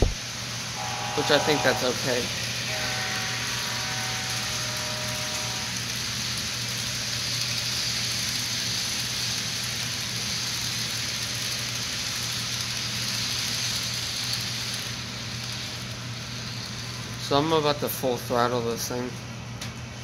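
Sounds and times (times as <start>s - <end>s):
steady hiss: 0.0s - 19.2s
locomotive horn chord: 0.8s - 5.9s.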